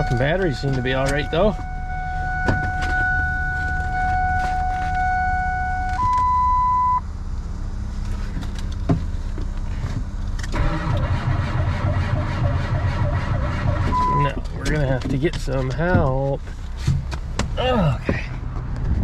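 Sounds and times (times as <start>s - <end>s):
starter motor whine: 10.5s - 14.3s.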